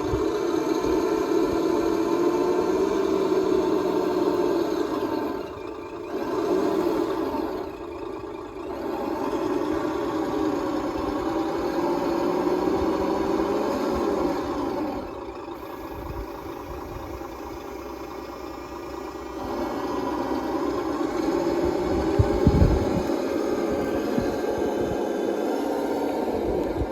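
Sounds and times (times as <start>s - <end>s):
truck engine sound from small speaker: 0.0s - 26.9s.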